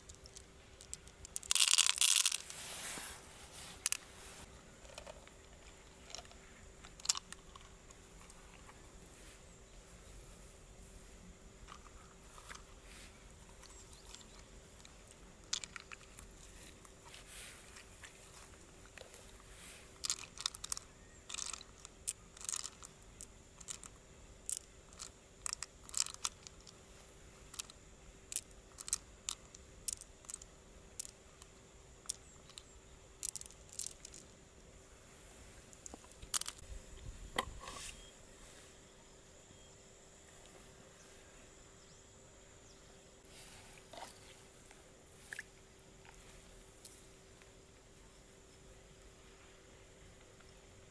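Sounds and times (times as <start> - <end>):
mussel shells clicking and scraping: 0.0 - 2.7, 3.6 - 4.2, 4.8 - 8.8, 11.6 - 26.8, 27.4 - 34.6, 35.6 - 36.7.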